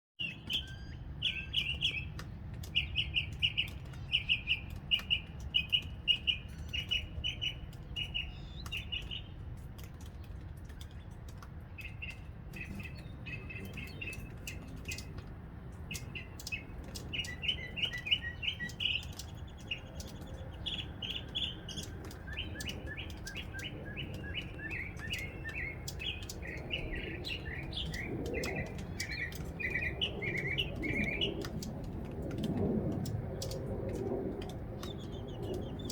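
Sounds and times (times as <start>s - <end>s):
mockingbird singing: 0.2s - 9.3s, 15.8s - 31.7s.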